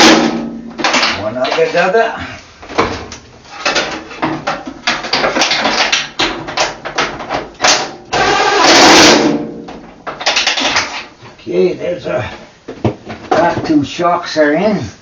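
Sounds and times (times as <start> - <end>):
impact wrench hammering: 0.0 - 1.1.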